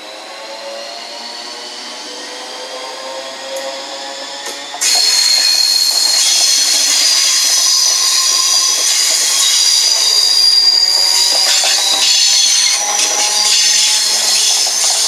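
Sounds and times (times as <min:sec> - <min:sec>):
train wheels squealing on rails: 0:00.0 - 0:15.0.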